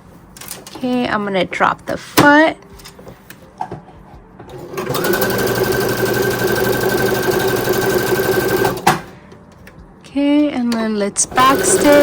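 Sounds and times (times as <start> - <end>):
sewing machine sewing: 4.5 - 9.0, 11.3 - 12.0.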